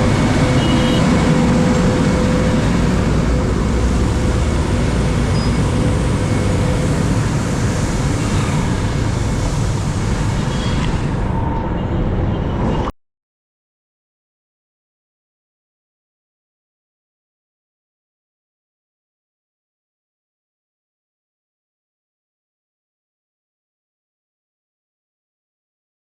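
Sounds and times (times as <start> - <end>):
road sweeper engine rumble: 0.0 - 12.6
road traffic: 0.0 - 13.0.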